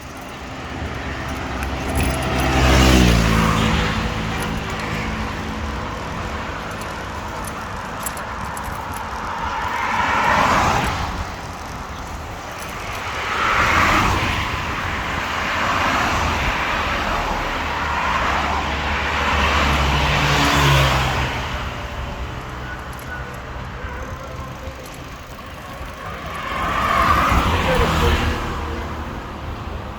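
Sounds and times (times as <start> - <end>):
cars passing: 0.0 - 29.9
traffic background rumble: 0.0 - 29.9.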